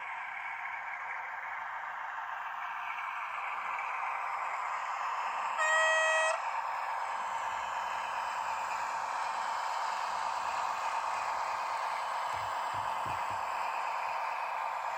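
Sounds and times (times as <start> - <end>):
locomotive horn blast: 5.6 - 6.5
steady running noise: 10.3 - 14.7.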